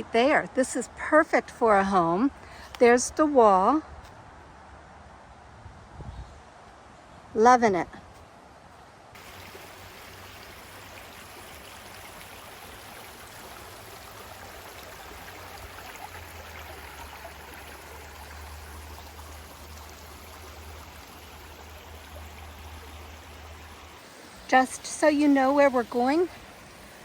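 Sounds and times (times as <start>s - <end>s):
creek water rushing: 9.2s - 27.0s.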